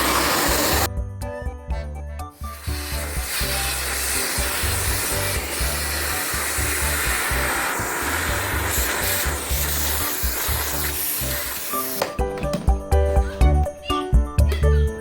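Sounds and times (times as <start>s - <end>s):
vacuum cleaner running: 0.0s - 0.9s.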